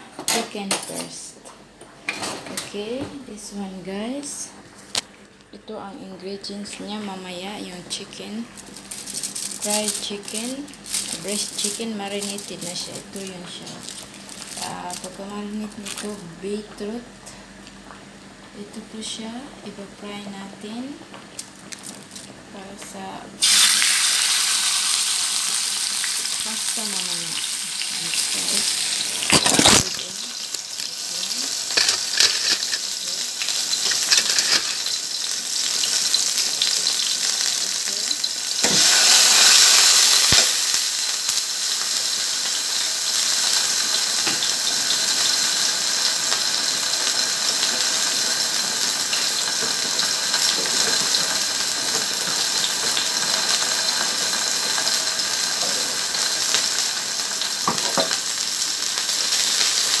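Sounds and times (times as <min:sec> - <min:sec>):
chicken sizzling in oil: 0:23.4 - 1:00.0.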